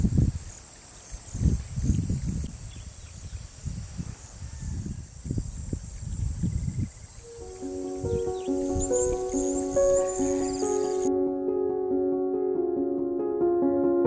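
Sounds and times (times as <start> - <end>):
high-pitched hiss: 0.0 - 11.1
wind buffeting microphone: 0.0 - 11.1.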